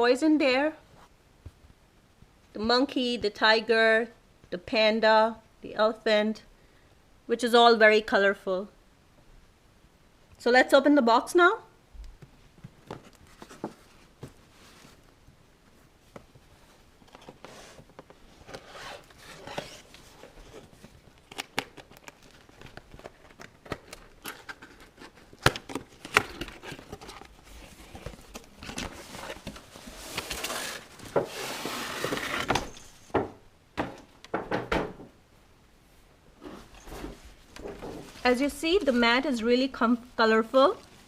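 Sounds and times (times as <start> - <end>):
cardboard and tape tearing: 18.4 - 32.8
plastic packaging crinkling: 19.3 - 32.9.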